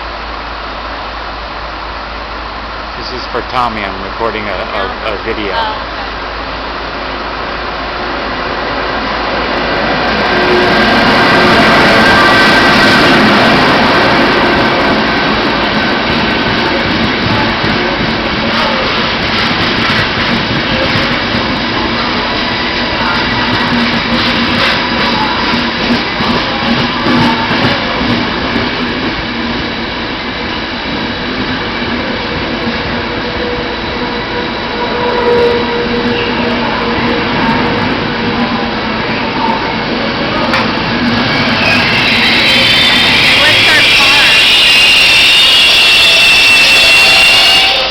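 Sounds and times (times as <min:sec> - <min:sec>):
passenger train running: 0:00.0 - 0:47.9
thin squeal: 0:41.4 - 0:47.9.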